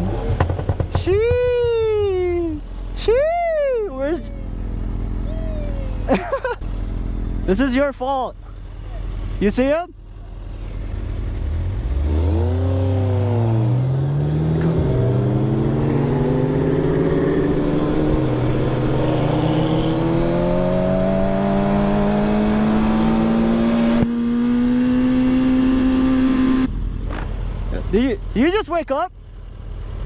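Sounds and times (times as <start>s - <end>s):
vehicle engine accelerating: 8.4s - 28.2s.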